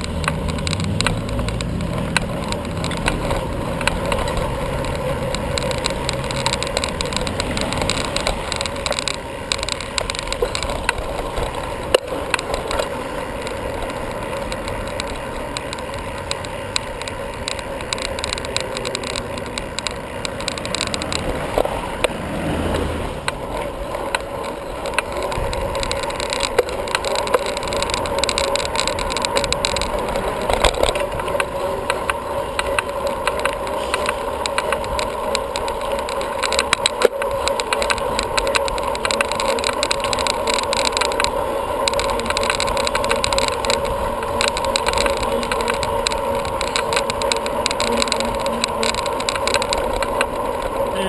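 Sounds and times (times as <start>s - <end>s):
bicycle road noise: 0.0s - 51.0s
constant hum: 0.0s - 51.0s
wind noise: 19.8s - 50.9s.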